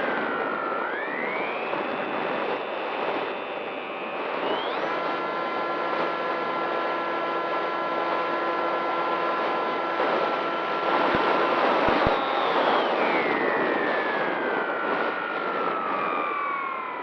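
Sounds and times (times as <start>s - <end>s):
model plane motor whining: 0.0s - 17.0s
wind noise: 9.0s - 17.0s.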